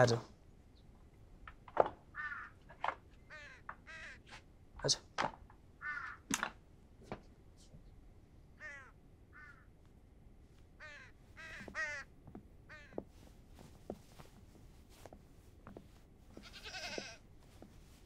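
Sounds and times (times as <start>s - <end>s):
birds calling: 1.9s - 5.0s, 5.7s - 6.4s, 8.6s - 9.9s, 10.6s - 13.3s.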